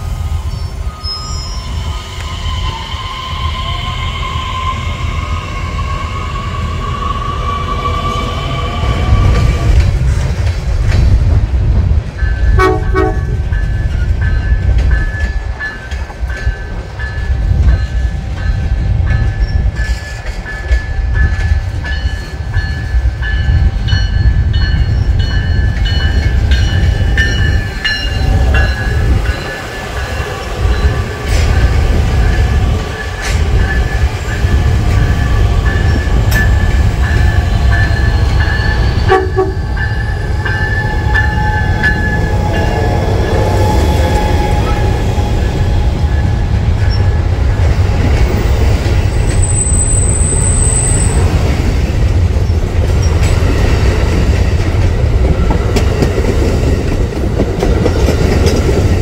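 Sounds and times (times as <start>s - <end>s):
train wheels and machinery rumbling: 0.0s - 59.0s
brief tone: 0.5s - 2.0s.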